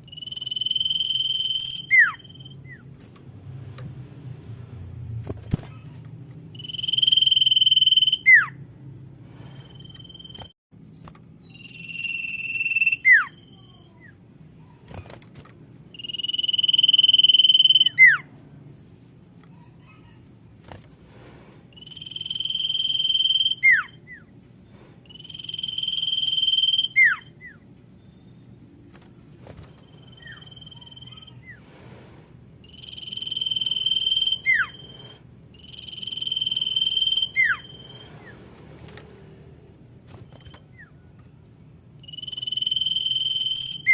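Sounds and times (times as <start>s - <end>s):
bird whistled call: 0.0s - 2.8s, 6.6s - 8.6s, 11.4s - 13.9s, 16.0s - 18.2s, 21.8s - 24.3s, 25.1s - 28.4s, 29.8s - 31.6s, 32.6s - 38.4s, 42.0s - 43.9s.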